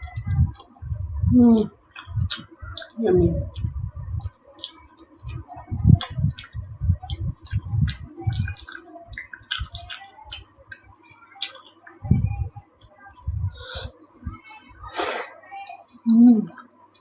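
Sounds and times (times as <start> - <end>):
muffled chewing thumps: 0.0 - 14.7
chewing soft food: 0.0 - 15.8
wet mouth clicks and smacks: 1.9 - 5.4, 6.0 - 12.0.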